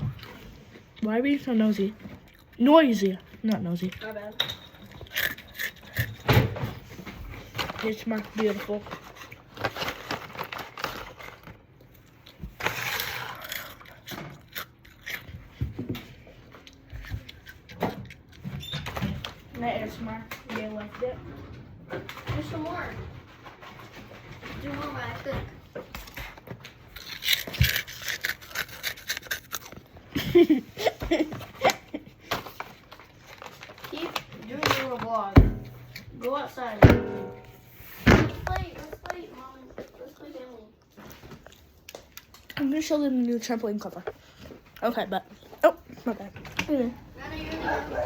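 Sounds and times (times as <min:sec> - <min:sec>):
taps scrapes and crunches: 0:23.4 - 0:29.9
clicks taps and crunchy crackles: 0:38.4 - 0:46.8.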